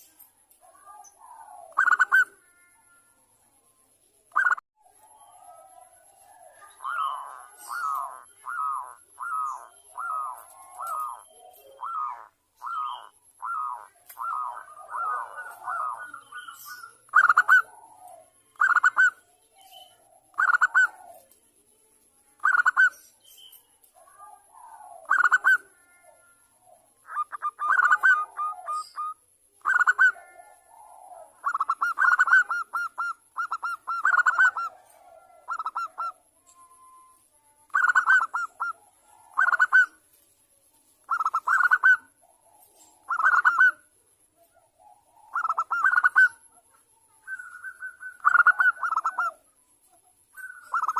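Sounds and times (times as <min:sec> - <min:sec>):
dove cooing in staccato bursts: 0:00.7 - 0:02.7, 0:05.4 - 0:19.2, 0:19.9 - 0:21.3, 0:24.0 - 0:36.3, 0:37.7 - 0:40.0, 0:41.0 - 0:43.9, 0:44.5 - 0:47.1, 0:47.7 - 0:49.5.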